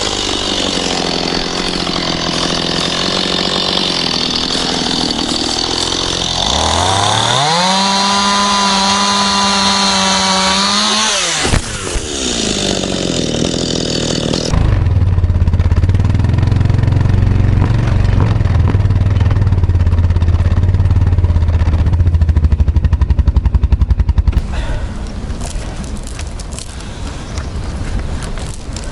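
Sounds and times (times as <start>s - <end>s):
chainsaw revving: 0.0s - 14.9s
loud low engine drone: 14.3s - 26.1s.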